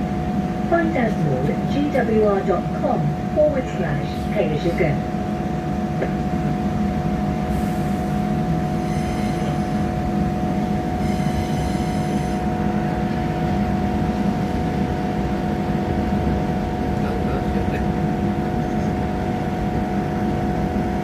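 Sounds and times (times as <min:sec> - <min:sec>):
train wheels rumbling: 0:00.0 - 0:21.0
humming drone: 0:08.0 - 0:14.2.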